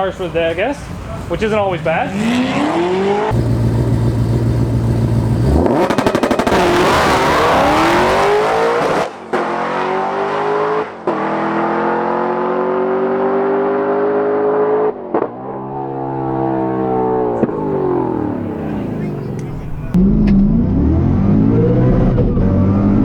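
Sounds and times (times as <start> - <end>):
race car accelerating: 0.5 - 23.0.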